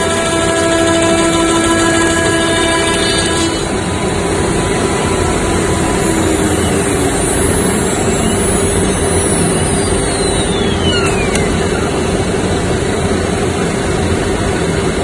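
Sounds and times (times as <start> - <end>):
high whine falling in pitch: 0.0 - 15.0
router machine running: 0.0 - 15.0
low hum: 3.8 - 14.9.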